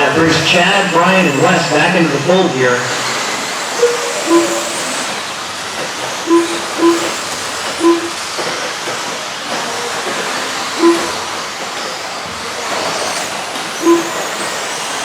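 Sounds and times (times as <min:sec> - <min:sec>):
rc trucks motors whirring: 0:03.0 - 0:08.4, 0:10.3 - 0:15.0
lap timer short beeps: 0:03.8 - 0:05.1, 0:06.3 - 0:08.3, 0:10.8 - 0:11.2, 0:13.8 - 0:14.2.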